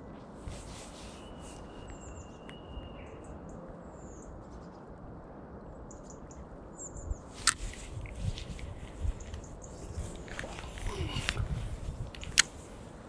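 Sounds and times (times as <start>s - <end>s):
wind: 0.0s - 13.0s
thin bird whistle: 0.7s - 4.3s
small birds chirping: 5.8s - 7.5s
flowing water: 9.9s - 13.0s.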